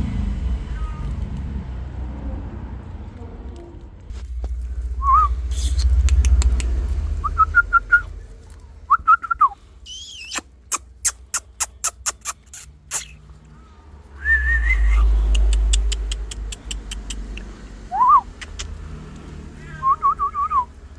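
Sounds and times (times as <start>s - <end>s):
low rumble: 0.0s - 9.8s, 13.7s - 20.9s
warbling whistles: 5.0s - 6.1s, 7.2s - 8.1s, 8.9s - 13.2s, 14.2s - 15.7s, 19.6s - 20.7s
sharp clicks: 15.2s - 17.6s, 18.3s - 19.3s.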